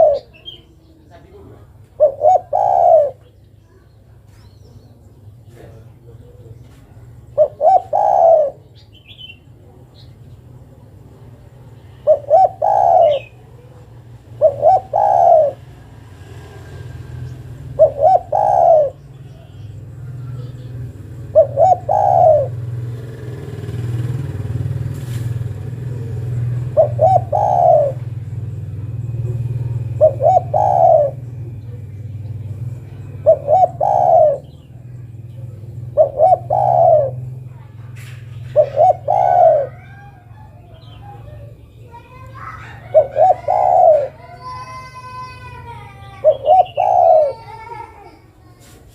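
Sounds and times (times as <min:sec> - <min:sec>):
dove cooing: 0:00.0 - 0:00.6, 0:01.4 - 0:03.4, 0:05.5 - 0:48.6
steady low hum: 0:23.8 - 0:44.3.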